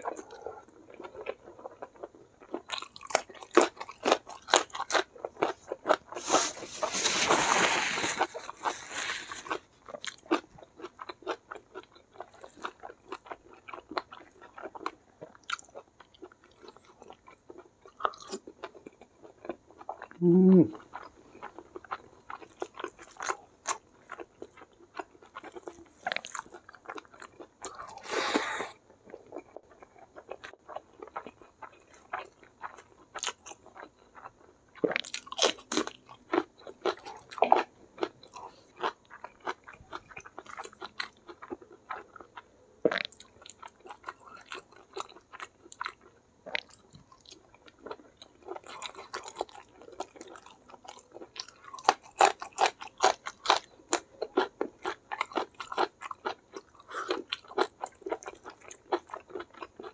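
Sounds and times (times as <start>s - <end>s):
chewing and crunching food: 0.0s - 59.9s
breathy noise: 27.8s - 28.8s.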